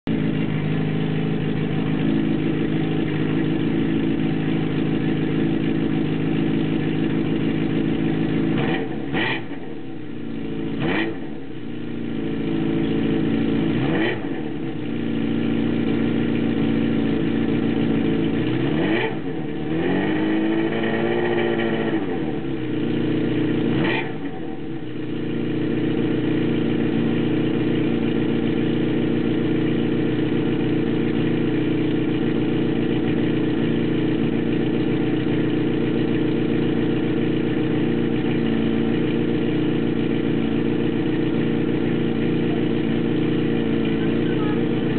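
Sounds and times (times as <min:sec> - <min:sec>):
motorcycle engine idling: 0:00.0 - 0:44.9
motorcycle engine revving: 0:00.1 - 0:44.9.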